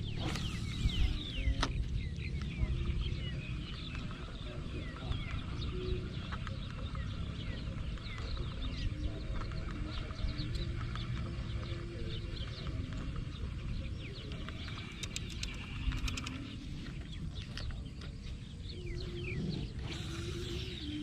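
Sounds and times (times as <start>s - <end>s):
cluster of clicks: 1.6s - 18.2s.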